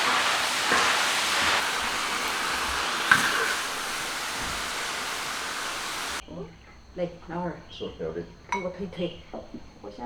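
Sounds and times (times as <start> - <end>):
food sizzling in a wok: 0.0 - 6.2.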